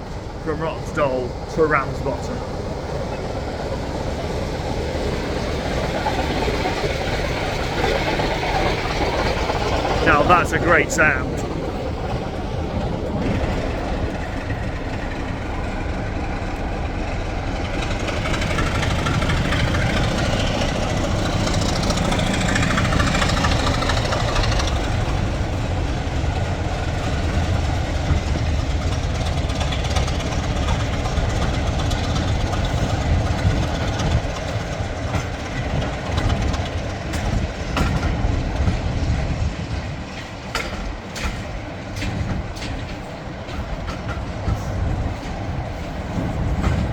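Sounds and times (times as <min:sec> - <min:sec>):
diesel locomotive engine running: 0:00.0 - 0:46.9
carriage wheels clicking over rail joints: 0:11.7 - 0:46.9.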